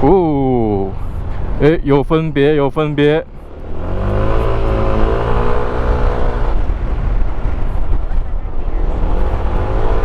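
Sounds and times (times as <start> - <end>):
scooter engine revving: 3.5 - 6.8.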